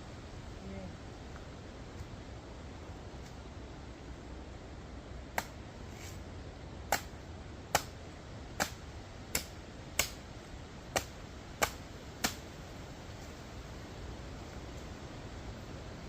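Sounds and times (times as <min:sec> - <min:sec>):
machete chopping coconut: 0:05.3 - 0:05.6, 0:06.9 - 0:08.0, 0:08.6 - 0:10.2, 0:10.9 - 0:12.4.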